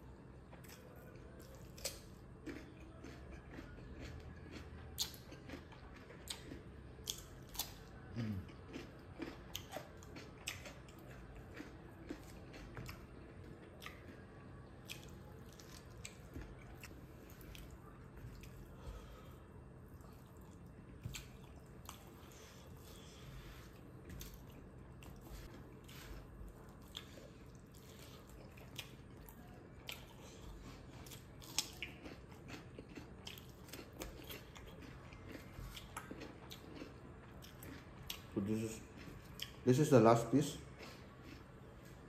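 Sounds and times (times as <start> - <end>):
crunchy cucumber bites: 8.7 - 13.0.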